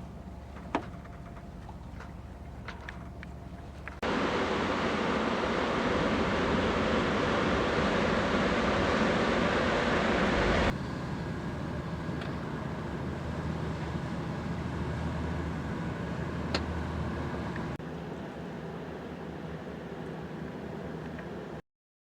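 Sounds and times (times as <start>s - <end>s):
low motor drone: 0.0s - 21.6s
rushing wind and water: 4.0s - 10.8s.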